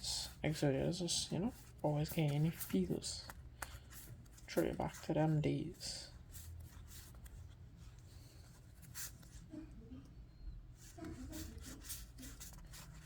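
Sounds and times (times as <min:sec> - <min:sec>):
trading cards rustling and sliding: 0:00.4 - 0:09.5.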